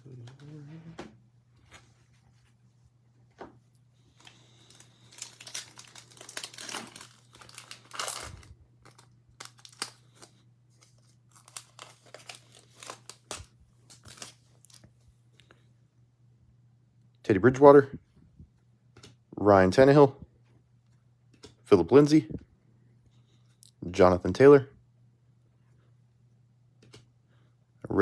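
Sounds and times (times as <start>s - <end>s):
plastic wrappers tearing and crinkling: 4.2s - 14.9s.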